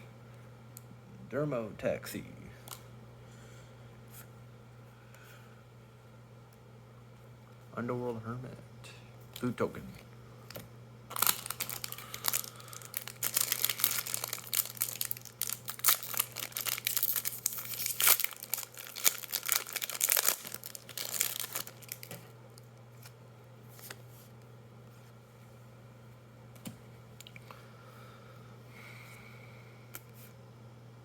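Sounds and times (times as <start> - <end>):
foil wrapper tearing and crinkling: 11.1 - 22.2.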